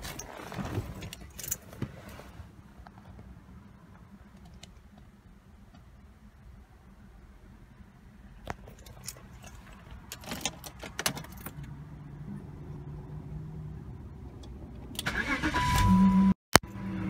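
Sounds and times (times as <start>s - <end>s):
keys rattling and clicking: 1.0s - 1.7s, 8.6s - 11.7s
car engine cranking and starting: 14.8s - 17.0s.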